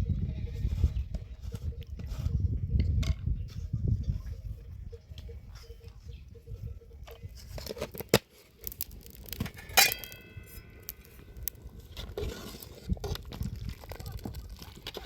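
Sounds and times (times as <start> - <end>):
loud ringing clink: 9.6 - 11.2.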